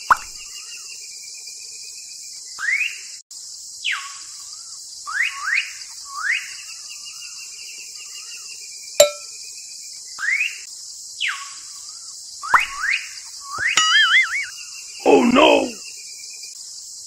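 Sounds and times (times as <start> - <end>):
birds whistling and warbling: 11.2 - 15.9.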